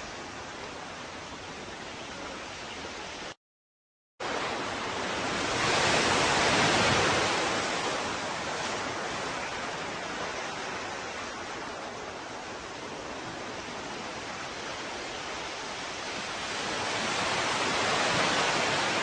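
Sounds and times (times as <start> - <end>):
wave breaking: 4.2 - 11.7
ocean surf washing: 4.2 - 19.0.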